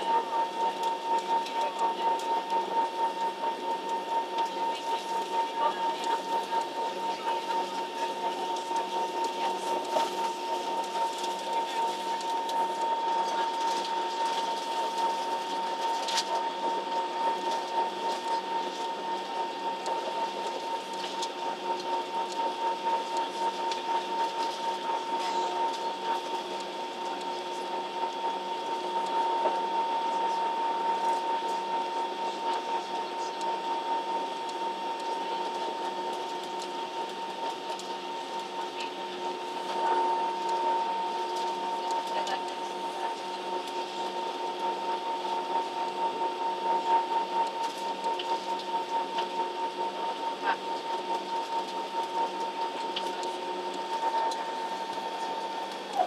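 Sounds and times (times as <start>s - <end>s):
airplane cabin drone: 0.0s - 28.2s, 53.0s - 56.0s
high steady whine: 0.0s - 56.0s.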